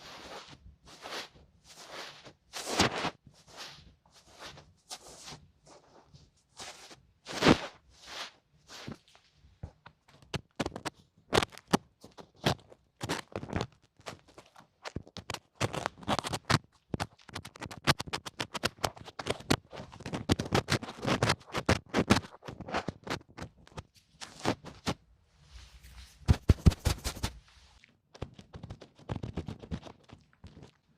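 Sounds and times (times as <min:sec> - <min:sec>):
ear cleaning scratching: 0:00.0 - 0:05.4, 0:26.1 - 0:27.5.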